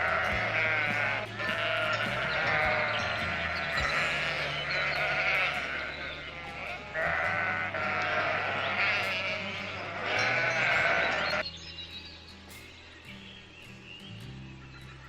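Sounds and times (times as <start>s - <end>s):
sheep or goats bleating: 0.0s - 11.4s.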